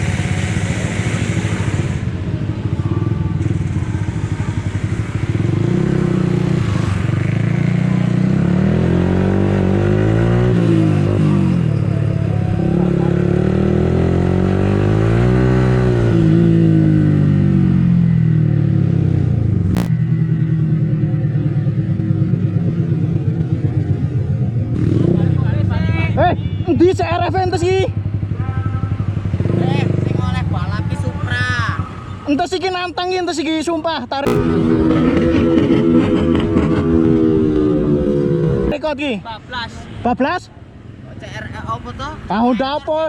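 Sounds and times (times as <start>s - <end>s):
motorcycle engine revving: 0.0s - 25.7s, 29.0s - 32.1s, 34.3s - 38.9s.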